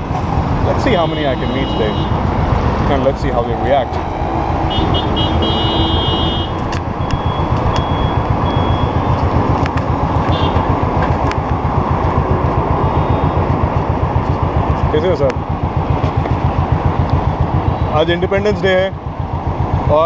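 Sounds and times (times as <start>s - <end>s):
motorcycle engine thumping: 4.9s - 12.8s, 13.4s - 17.6s
short high beeps: 7.0s - 9.0s.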